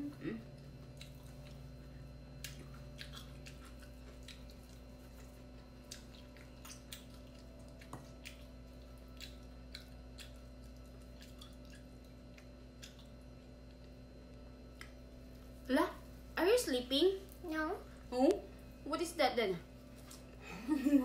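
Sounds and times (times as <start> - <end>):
person chewing food: 0.5 - 15.1
wet mouth clicks and smacks: 9.1 - 13.2.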